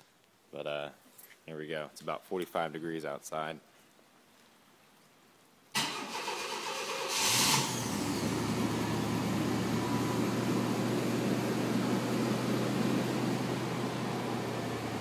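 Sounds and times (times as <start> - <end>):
car engine starting and idling: 5.8 - 15.0.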